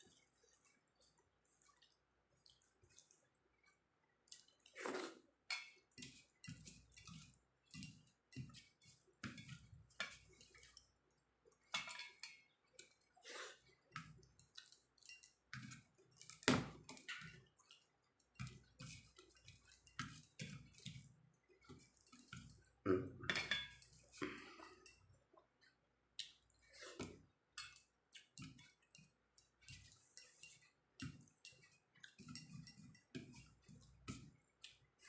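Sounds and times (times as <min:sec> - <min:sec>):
wet chewing and mouth smacks: 0:00.4 - 0:05.2, 0:25.3 - 0:26.8.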